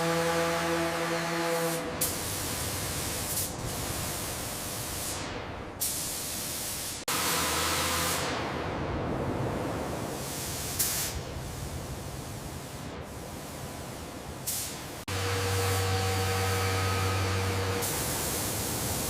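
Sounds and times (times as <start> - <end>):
hiss of spray: 1.6 - 8.4, 10.0 - 19.0
droning hum: 15.1 - 19.0.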